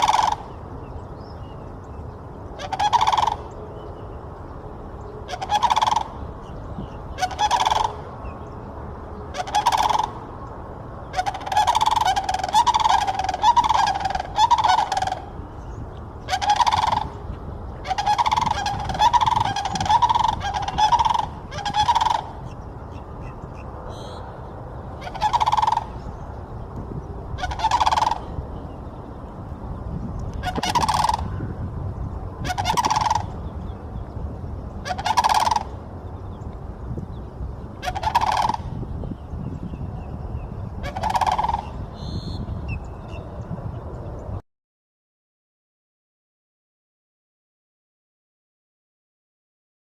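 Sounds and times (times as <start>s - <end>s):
cranes bugling: 0.0s - 0.8s, 2.2s - 10.4s, 11.0s - 36.9s, 37.6s - 39.1s, 40.7s - 42.7s.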